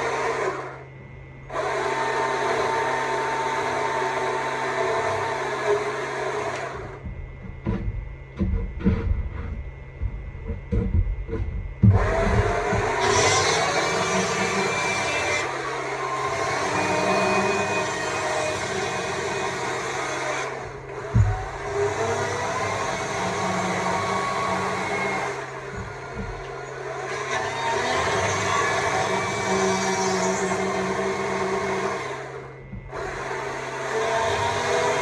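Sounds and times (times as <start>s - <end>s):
electric chainsaw cutting wood: 0.0s - 0.8s, 1.5s - 7.0s, 11.9s - 35.0s
knock: 7.0s - 12.9s.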